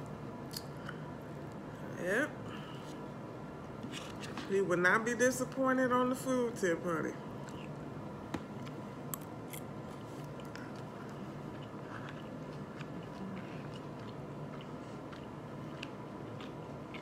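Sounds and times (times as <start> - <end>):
faint background hum: 0.0 - 17.0
person chewing food: 7.4 - 17.0.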